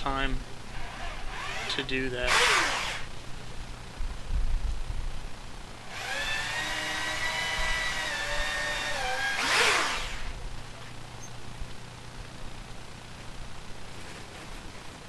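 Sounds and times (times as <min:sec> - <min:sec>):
power drill running: 0:00.0 - 0:03.3, 0:05.7 - 0:10.5.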